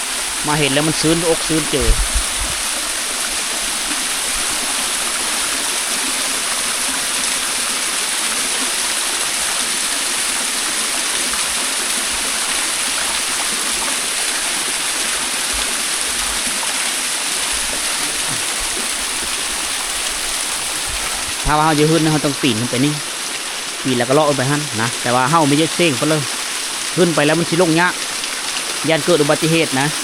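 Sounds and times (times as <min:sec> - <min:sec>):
waterfall running over rock: 0:00.0 - 0:30.0.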